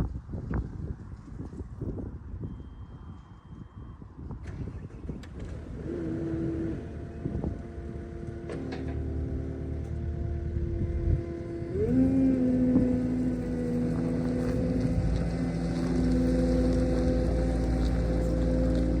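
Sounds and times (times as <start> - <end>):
skid steer engine revving: 4.4 - 19.0.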